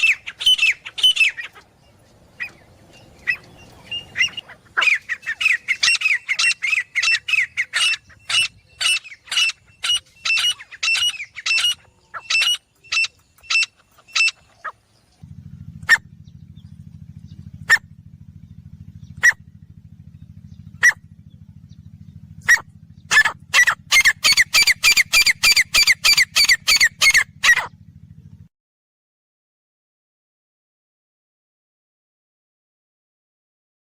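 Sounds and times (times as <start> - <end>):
francolin calling: 0.0 - 15.2, 15.8 - 19.4, 20.2 - 27.7
low steady hum: 0.0 - 28.5.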